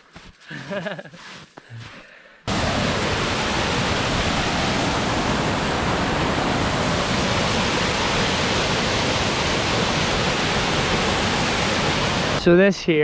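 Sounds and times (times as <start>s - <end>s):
rushing falling water: 2.5s - 12.4s.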